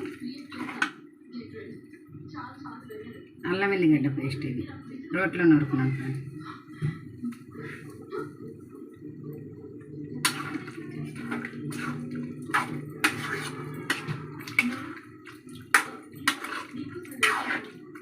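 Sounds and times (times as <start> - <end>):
oil bubbling in a pan: 6.5 - 18.0
sharp wet sizzling strokes: 10.2 - 18.0.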